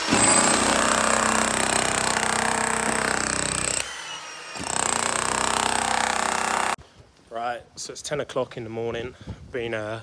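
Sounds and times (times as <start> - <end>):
petrol saw cutting: 0.0 - 6.8.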